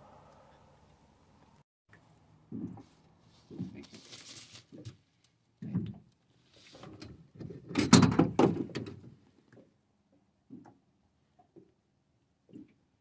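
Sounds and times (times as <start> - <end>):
knocks and thumps in a boat: 5.6 - 6.1, 7.4 - 9.2
sharp knocks and rattles: 7.5 - 9.1.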